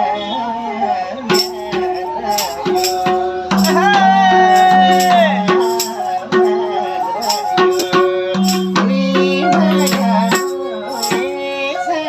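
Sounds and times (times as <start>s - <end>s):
sarangi sliding melody: 0.0s - 12.0s
hand drum strokes: 1.3s - 11.5s.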